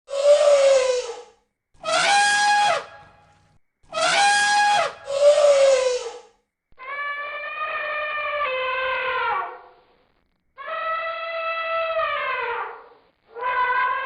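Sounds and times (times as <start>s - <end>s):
trumpet-like animal calls: 0.1s - 3.2s, 3.9s - 9.7s, 10.6s - 14.0s.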